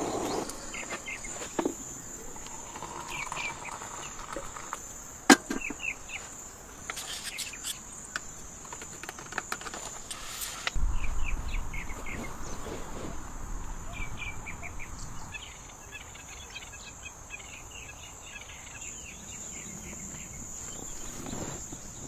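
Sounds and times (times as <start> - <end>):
high insect drone: 0.0 - 22.0
low rumble: 10.8 - 16.2.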